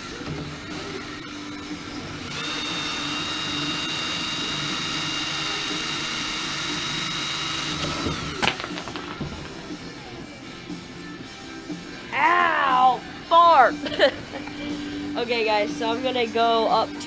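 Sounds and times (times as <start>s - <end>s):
drill wire brush scrubbing metal: 2.2s - 8.4s.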